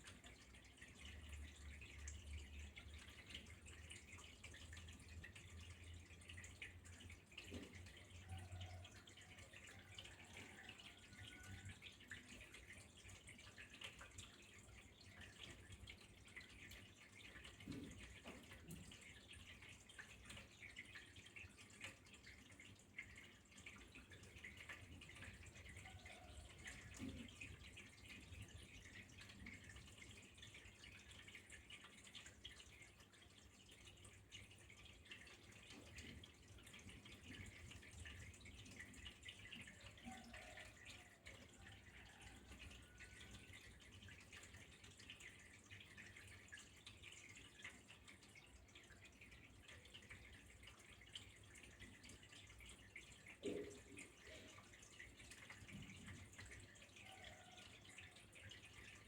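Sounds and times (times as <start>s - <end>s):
water trickling and dripping: 0.0s - 59.0s.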